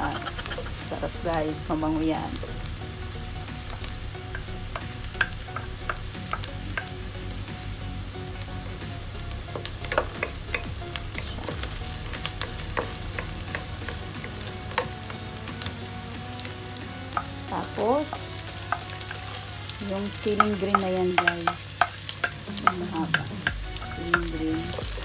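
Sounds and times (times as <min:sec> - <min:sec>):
garlic and onion sizzling in oil: 0:00.0 - 0:25.0
wooden spoon knocking pot: 0:03.7 - 0:07.0, 0:09.4 - 0:15.2, 0:20.0 - 0:25.0.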